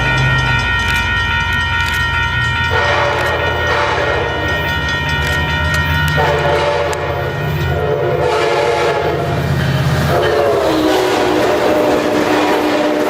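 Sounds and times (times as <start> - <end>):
diesel locomotive rumble: 0.0 - 13.0
locomotive horn: 2.6 - 13.0.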